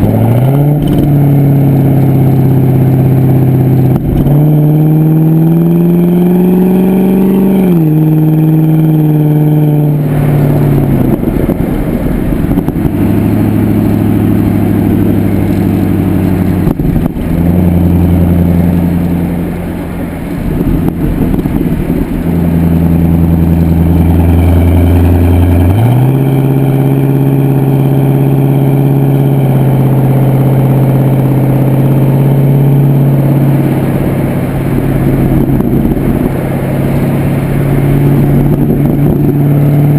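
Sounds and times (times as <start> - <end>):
loud car exhaust note: 0.0 - 39.9.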